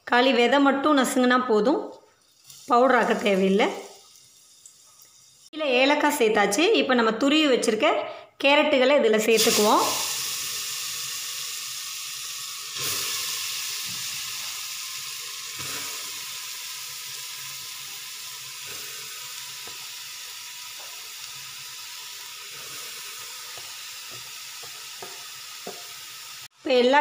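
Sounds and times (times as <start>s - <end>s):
carrots sizzling in hot fat: 2.1s - 5.6s, 9.3s - 26.7s.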